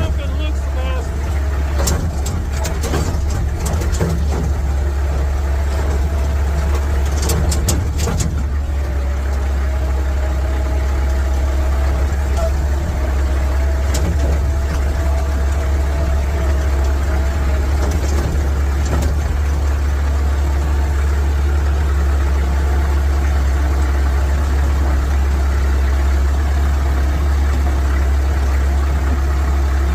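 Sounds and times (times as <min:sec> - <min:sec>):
tractor engine rumbling: 0:00.0 - 0:29.9.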